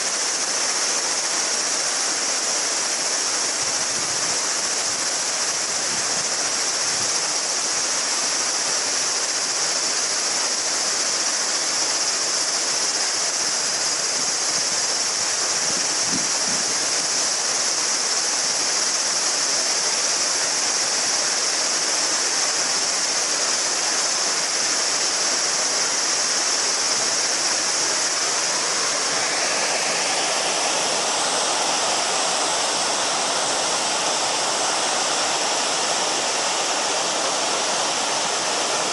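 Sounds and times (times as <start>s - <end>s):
cicadas shrilling: 0.0s - 38.9s
lower cicada song: 0.0s - 38.9s
river babbling over stones: 0.0s - 38.9s.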